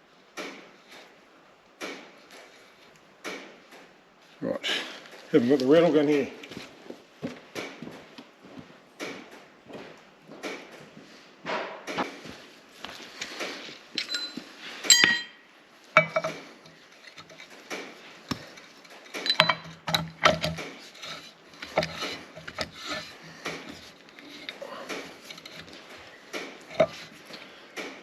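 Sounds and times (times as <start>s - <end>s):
metal tools clinking and scraping: 14.0s - 27.5s.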